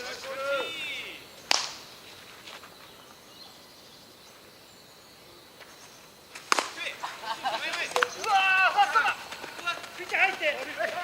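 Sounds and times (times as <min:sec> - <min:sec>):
baseball striking bat: 0:01.5 - 0:01.8, 0:06.4 - 0:06.8.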